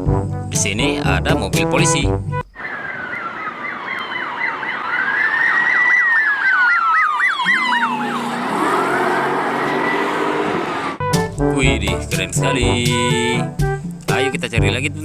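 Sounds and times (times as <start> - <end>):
police siren fast yelp: 2.6 - 11.0
police siren wail: 2.6 - 11.0.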